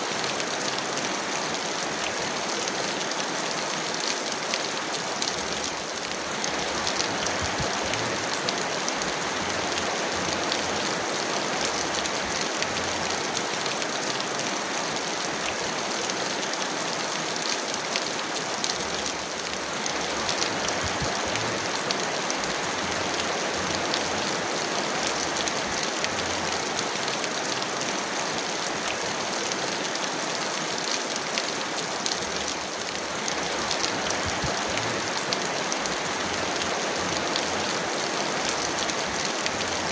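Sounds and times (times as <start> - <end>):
heavy rain hiss: 0.0 - 39.9
raindrop ticks: 0.1 - 39.9.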